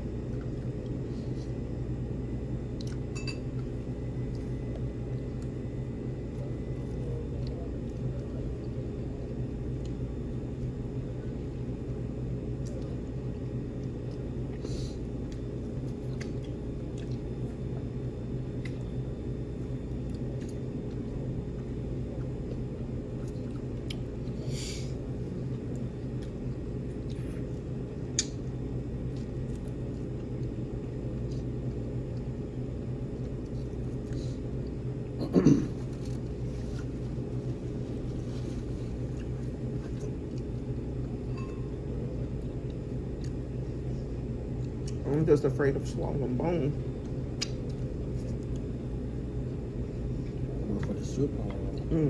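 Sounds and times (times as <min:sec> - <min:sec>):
low room hum: 0:00.0 - 0:52.0
chewing: 0:02.7 - 0:05.6, 0:15.3 - 0:17.9, 0:18.6 - 0:19.0, 0:19.9 - 0:24.3, 0:35.8 - 0:41.3, 0:44.6 - 0:45.1.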